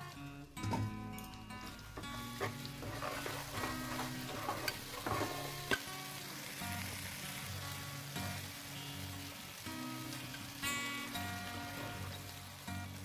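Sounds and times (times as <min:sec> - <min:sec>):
paste sizzling in hot oil: 0:01.5 - 0:13.0
spatula scraping a pan: 0:02.0 - 0:05.8.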